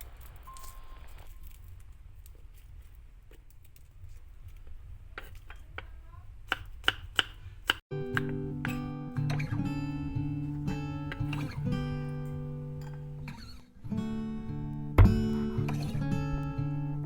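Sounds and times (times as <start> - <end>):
knife chopping on cutting board: 6.5 - 8.8
acoustic guitar music: 7.9 - 17.0.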